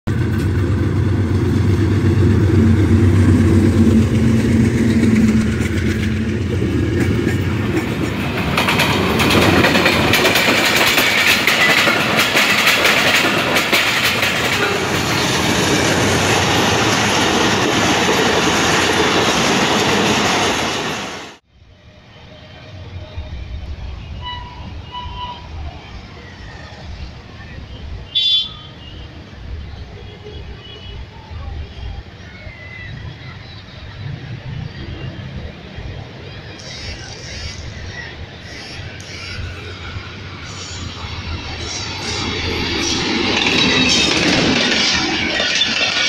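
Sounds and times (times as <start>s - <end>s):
wheels clattering over rail joints: 0.1s - 21.1s, 38.5s - 46.0s
locomotive engine rumble: 0.1s - 21.2s, 29.1s - 46.0s.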